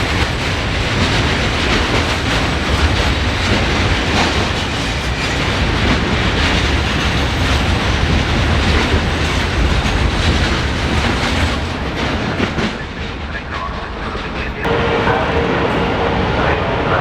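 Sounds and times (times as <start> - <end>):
freight train wagons rattling: 0.0 - 17.0.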